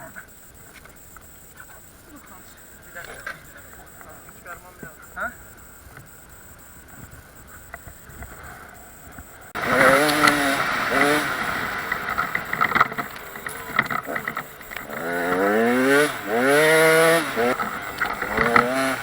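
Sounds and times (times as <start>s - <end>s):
dirt bike engine revving: 8.3s - 19.0s.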